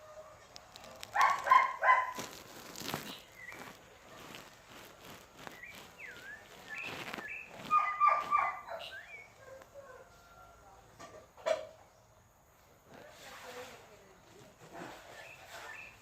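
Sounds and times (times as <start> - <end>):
animal chirping calls: 6.1 - 9.6.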